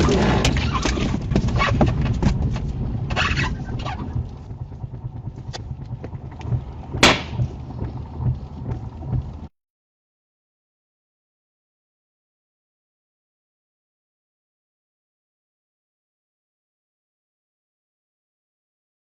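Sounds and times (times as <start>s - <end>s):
moving car rumble: 0.0s - 9.6s
sharp knock: 7.0s - 7.5s.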